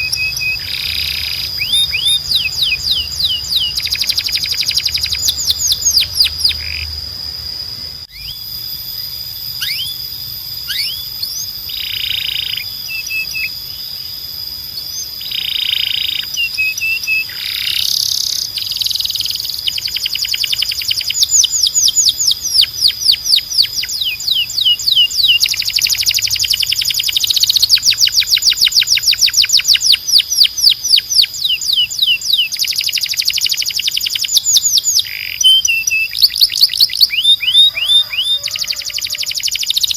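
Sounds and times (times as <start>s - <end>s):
canary singing trills: 0.0s - 7.0s, 8.0s - 39.9s.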